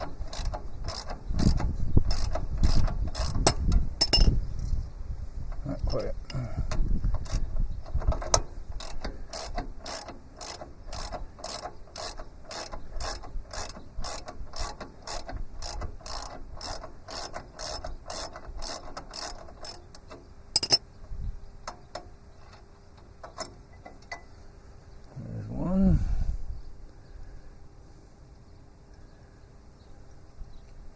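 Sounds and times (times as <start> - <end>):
hand ratchet clicking: 0.0 - 4.4, 5.8 - 20.8
sharp metallic clink: 20.6 - 20.8.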